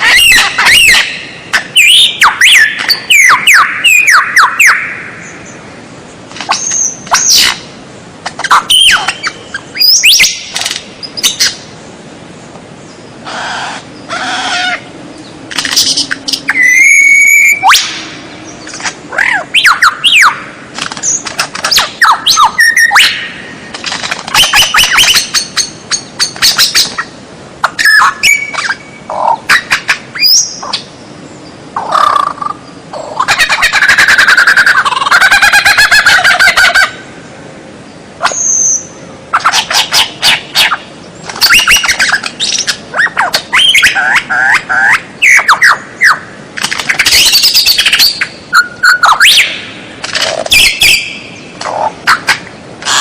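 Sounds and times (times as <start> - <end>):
songbird whistles and trills: 0.0 - 5.6, 6.5 - 7.6, 8.3 - 11.6, 14.6 - 23.4, 24.3 - 30.8, 38.2 - 46.3, 46.9 - 49.7, 50.5 - 51.5.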